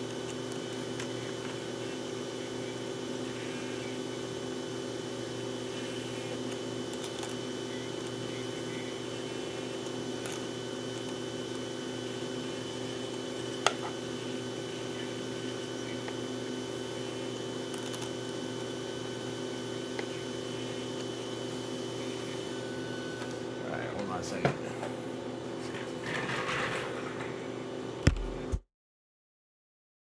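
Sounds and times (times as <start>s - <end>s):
steady machine hum: 0.0s - 28.6s.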